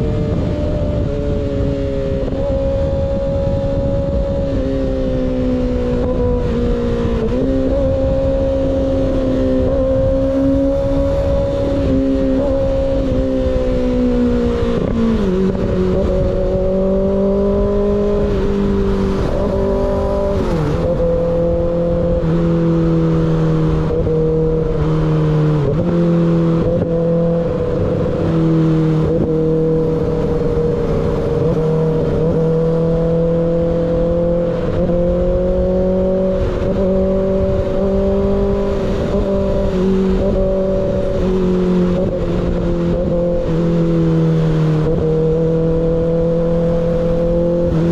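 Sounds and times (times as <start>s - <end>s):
motorcycle engine cruising: 0.0s - 47.9s
road and wind noise: 0.0s - 47.9s.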